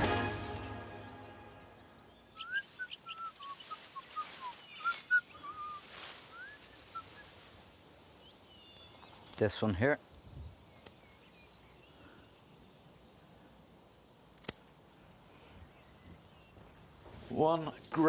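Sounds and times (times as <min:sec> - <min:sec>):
background music: 0:00.0 - 0:02.3
songbird whistled chirps: 0:01.0 - 0:07.4.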